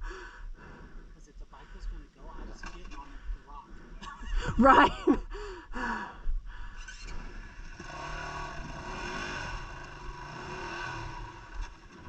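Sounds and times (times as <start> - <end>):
dirt bike engine running: 6.8 - 12.0.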